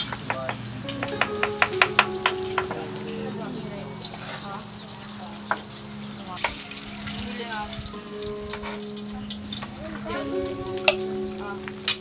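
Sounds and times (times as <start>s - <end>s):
food sizzling in hot oil: 0.8s - 12.0s
metal spatula scraping a pan: 8.6s - 9.0s.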